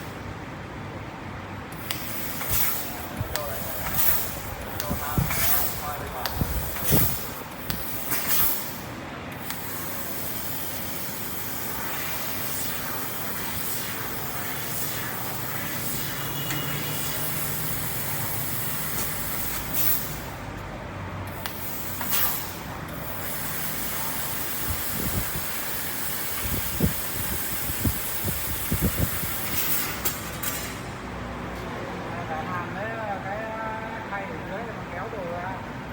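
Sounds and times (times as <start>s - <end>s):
hiss of assist gas: 21.3s - 30.2s.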